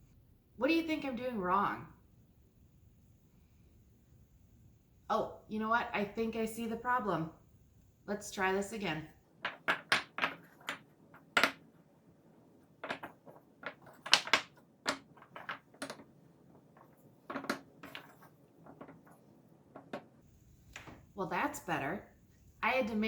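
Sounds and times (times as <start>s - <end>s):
toy blocks clacking: 9.5s - 11.7s, 12.8s - 16.1s.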